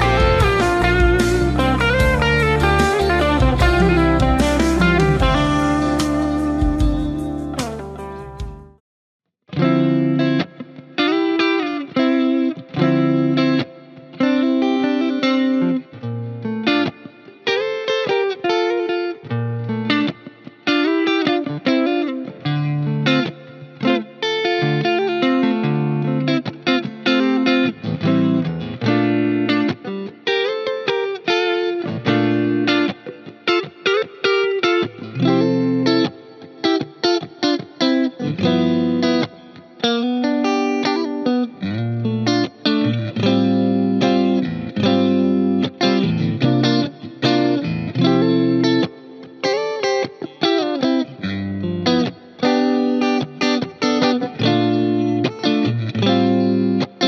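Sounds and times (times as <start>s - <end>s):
backing track: 0.0s - 8.8s
electric guitar lead: 0.0s - 8.8s, 9.5s - 57.0s.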